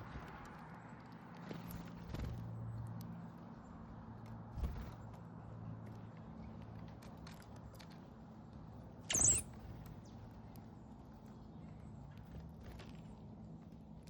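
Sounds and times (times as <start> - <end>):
high-pitched bird call: 9.1 - 9.4.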